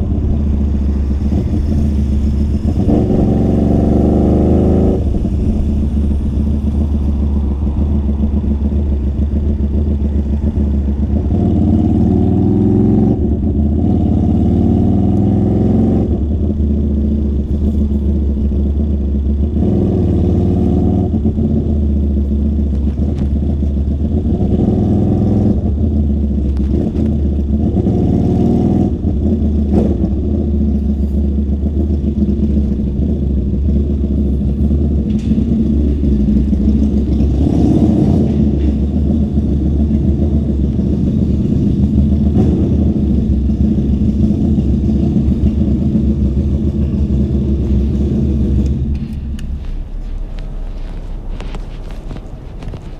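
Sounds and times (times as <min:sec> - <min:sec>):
muffled motorcycle engine revving: 0:00.0 - 0:52.9.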